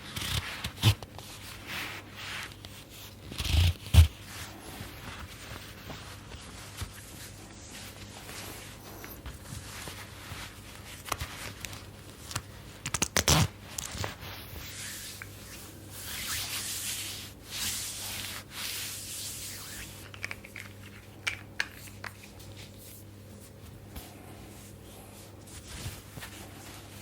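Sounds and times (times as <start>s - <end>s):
hands rubbing oiled skin: 1.2s - 27.0s.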